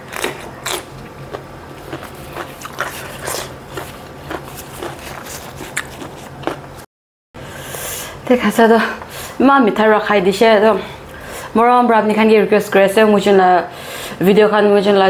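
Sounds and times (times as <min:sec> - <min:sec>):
crisp crunching while chewing: 0:00.0 - 0:06.8
wet mouth clicks: 0:04.4 - 0:06.6.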